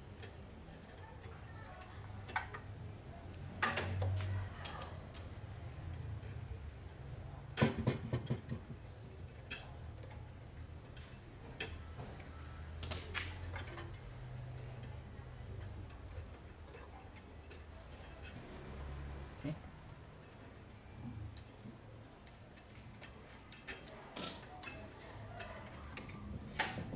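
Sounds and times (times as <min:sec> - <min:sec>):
metal parts and tools clicking: 0:22.2 - 0:26.9.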